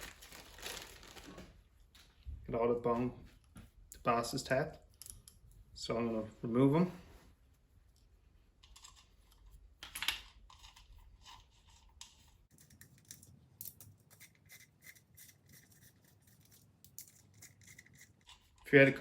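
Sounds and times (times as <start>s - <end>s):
metal parts and tools clicking: 8.6s - 18.7s.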